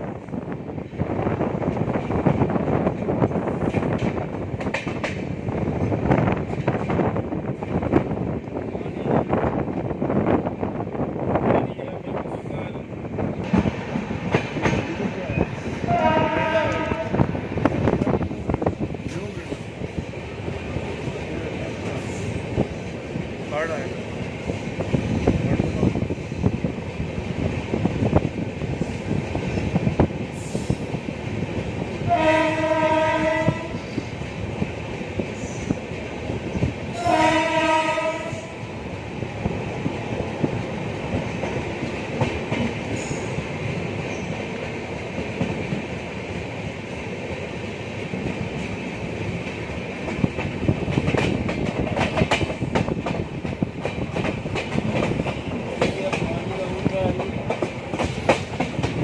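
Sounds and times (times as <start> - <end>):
train rumbling at speed: 0.0 - 59.0
train horn blasts: 15.8 - 17.4, 32.1 - 33.8, 36.9 - 38.6.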